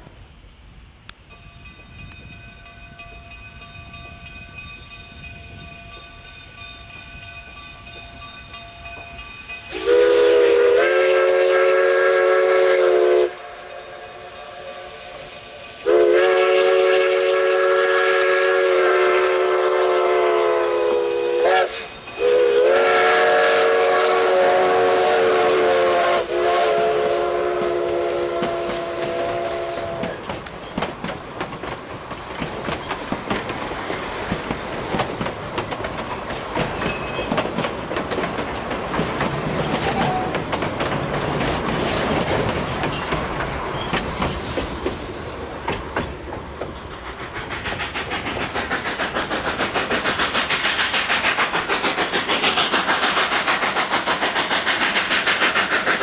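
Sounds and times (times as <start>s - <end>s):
train wheels clattering on rails: 1.2s - 56.0s
steam locomotive whistle chord: 8.5s - 30.2s.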